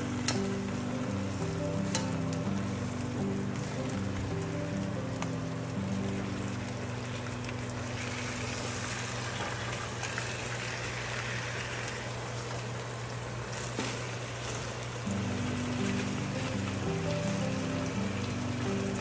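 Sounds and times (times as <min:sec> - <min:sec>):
background music: 0:00.0 - 0:09.2, 0:15.1 - 0:19.0
low steady hum: 0:00.0 - 0:13.6, 0:14.5 - 0:19.0
chicken sizzling in a frying pan: 0:00.0 - 0:19.0.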